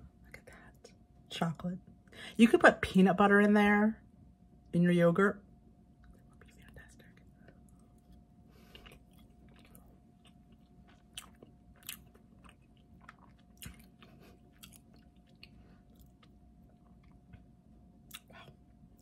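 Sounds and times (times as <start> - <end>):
chewing mouth sounds: 6.0 - 17.4, 18.1 - 18.6.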